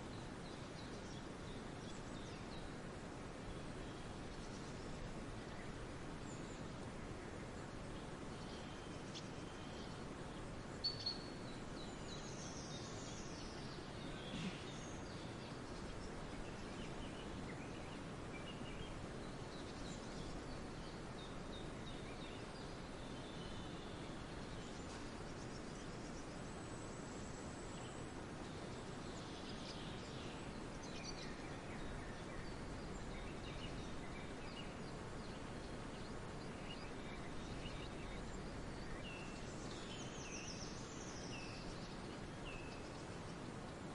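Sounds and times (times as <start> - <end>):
birdsong: 0.0 - 43.9
steady background hiss: 0.0 - 43.9
bird chirps: 10.8 - 26.2.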